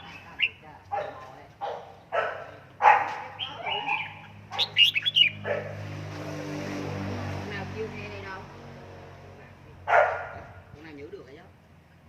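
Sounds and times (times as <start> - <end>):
bird chirping: 0.0 - 5.8
dog barking: 0.9 - 5.8, 9.9 - 10.6.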